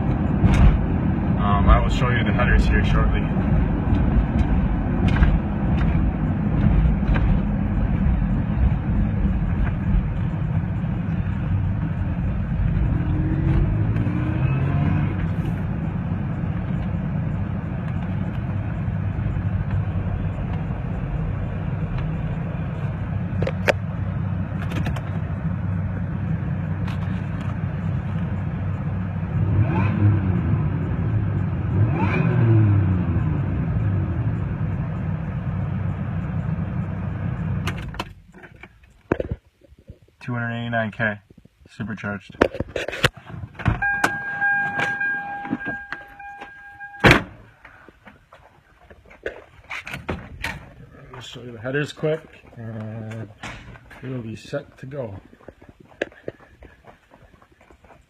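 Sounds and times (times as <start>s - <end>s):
truck engine revving: 11.3s - 22.8s, 29.2s - 34.7s.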